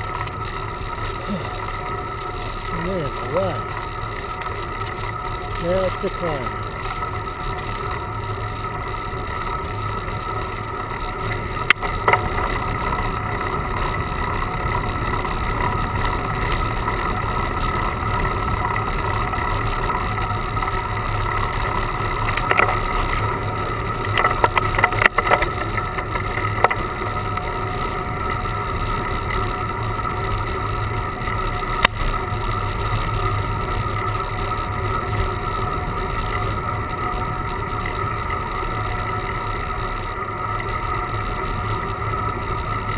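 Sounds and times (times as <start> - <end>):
road rumble: 0.0 - 42.9
sharp clicks and knocks: 11.6 - 12.5, 22.2 - 23.2, 24.0 - 27.5.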